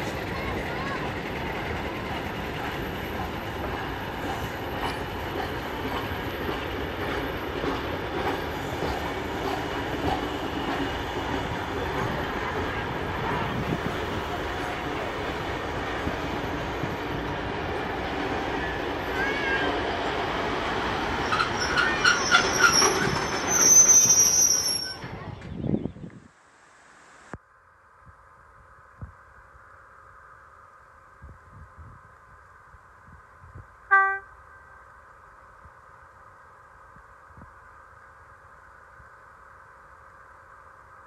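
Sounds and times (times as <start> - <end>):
train wheels rumbling and clattering: 0.0 - 25.6
high-pitched metallic squealing: 21.2 - 25.2.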